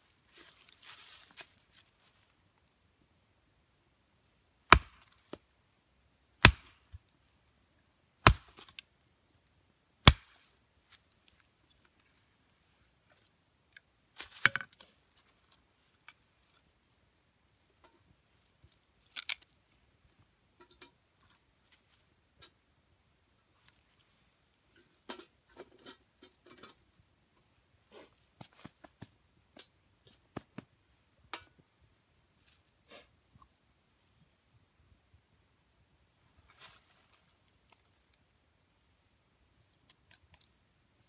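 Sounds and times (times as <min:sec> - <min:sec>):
rustling: 0:00.0 - 0:02.4, 0:36.4 - 0:38.2
wood cracking: 0:06.4 - 0:07.0, 0:08.2 - 0:08.9, 0:10.0 - 0:10.4, 0:19.1 - 0:19.5.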